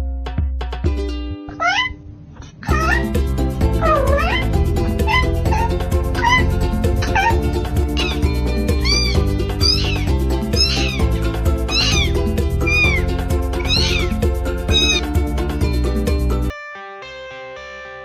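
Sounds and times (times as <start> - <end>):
cat meowing: 1.5 - 15.2
loud background music: 2.7 - 16.6.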